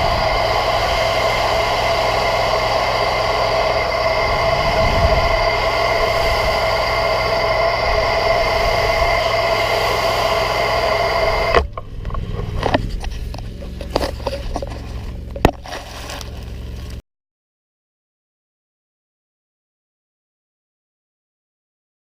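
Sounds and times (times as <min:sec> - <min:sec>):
low hum: 0:00.0 - 0:17.0
pressure washer whining: 0:00.0 - 0:17.0.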